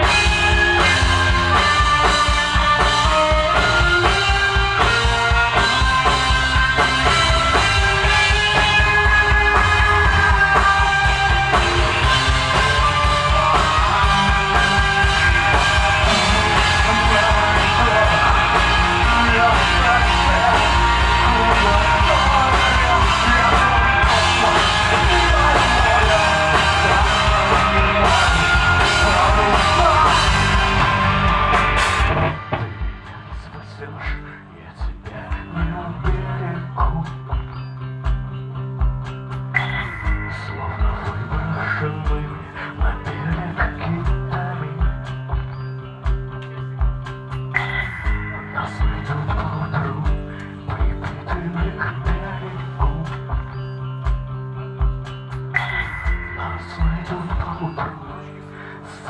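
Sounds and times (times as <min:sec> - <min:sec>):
drum kit: 0:00.0 - 0:33.6
rock band playing: 0:00.0 - 0:34.2, 0:34.8 - 0:58.3
guitars: 0:00.0 - 0:59.0
vocals: 0:00.0 - 0:59.0.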